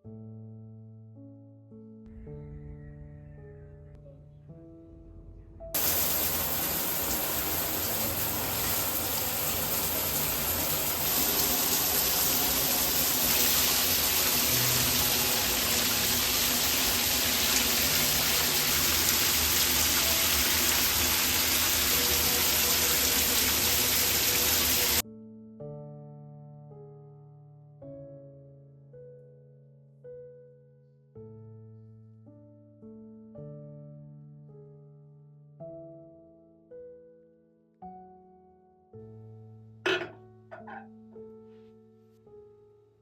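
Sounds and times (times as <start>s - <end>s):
soft background music: 0.0s - 43.0s
water running: 5.8s - 25.0s, 39.9s - 40.8s.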